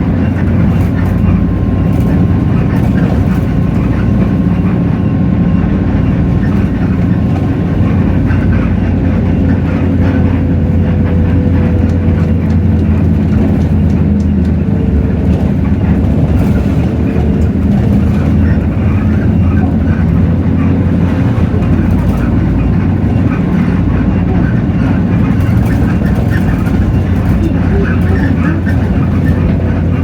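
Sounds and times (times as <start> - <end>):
bus diesel engine drone: 0.0 - 30.0.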